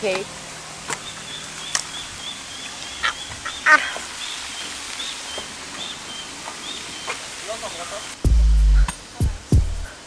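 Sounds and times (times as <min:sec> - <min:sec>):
birds chirping: 0:00.0 - 0:10.0
harsh bird calls: 0:00.9 - 0:09.1.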